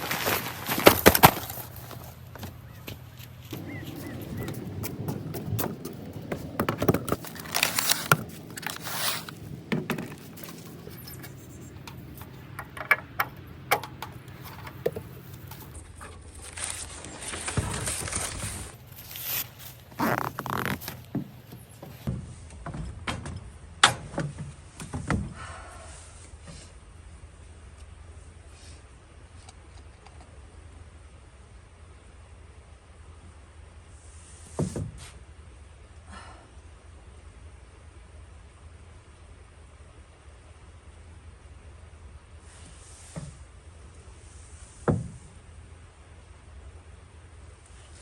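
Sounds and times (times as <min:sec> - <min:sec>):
objects scraping clicking and knocking: 0:03.5 - 0:22.1.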